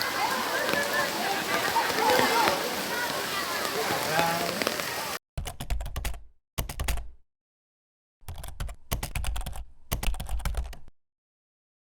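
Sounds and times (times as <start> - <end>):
keyboard typing clicks: 5.4 - 7.2, 8.2 - 10.9.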